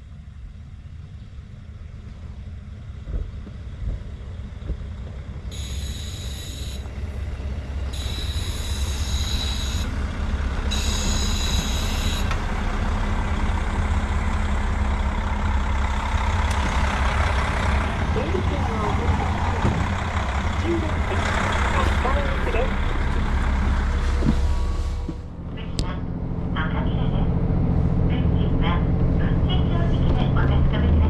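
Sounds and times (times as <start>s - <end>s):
diesel railcar engine rumble: 0.0s - 31.0s
brakes squealing: 5.5s - 25.3s.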